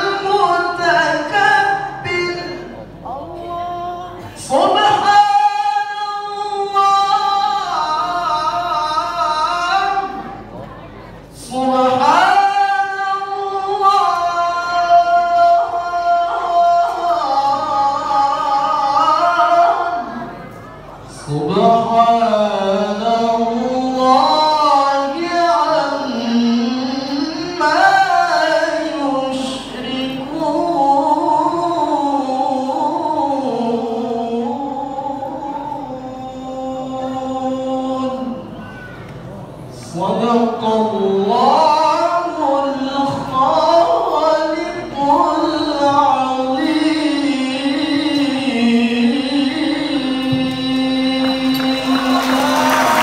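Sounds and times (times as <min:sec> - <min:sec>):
man chanting melodic recitation: 0:00.0 - 0:10.4, 0:11.3 - 0:20.2, 0:21.1 - 0:38.6, 0:39.7 - 0:53.0.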